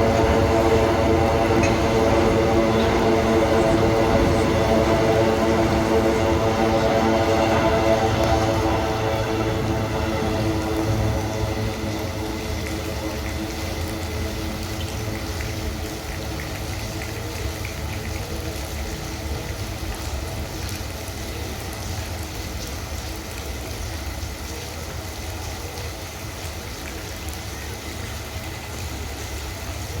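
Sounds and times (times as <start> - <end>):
freight train rumbling: 0.0 - 20.4
heavy rain falling: 0.0 - 30.0.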